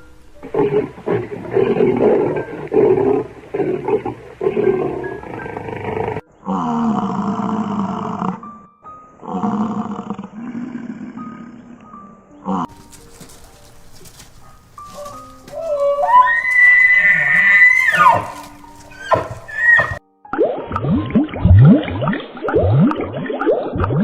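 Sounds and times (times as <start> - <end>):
light background music: 0.0 - 22.9
animal calling loudly: 14.3 - 20.0.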